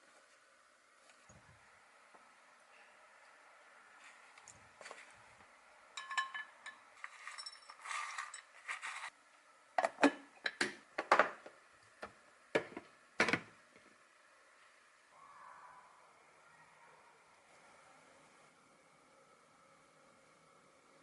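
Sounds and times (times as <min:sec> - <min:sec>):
dishes clinking: 0:06.0 - 0:08.5.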